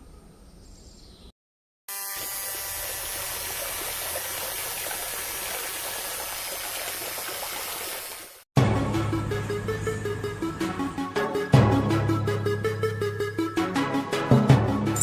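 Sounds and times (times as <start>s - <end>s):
small motor whirring: 1.9s - 4.0s.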